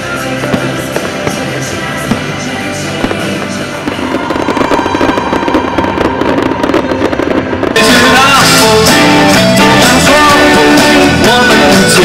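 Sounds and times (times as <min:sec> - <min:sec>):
fireworks crackling and popping: 0:00.0 - 0:12.0
music: 0:00.0 - 0:12.0
live rock band playing: 0:07.3 - 0:12.0.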